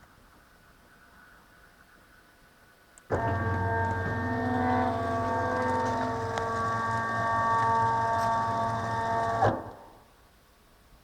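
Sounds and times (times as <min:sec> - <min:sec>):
stepper motors whining: 0:03.1 - 0:10.0.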